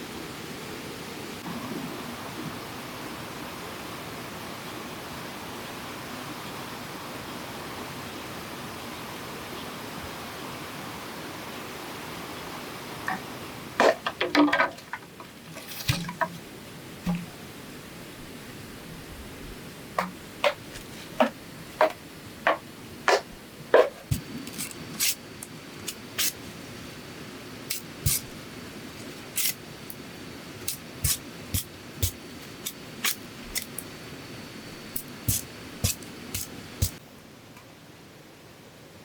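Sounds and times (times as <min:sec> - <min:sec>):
steady low hiss: 0:00.0 - 0:39.0
sharp knocks and clicks: 0:20.0 - 0:24.3.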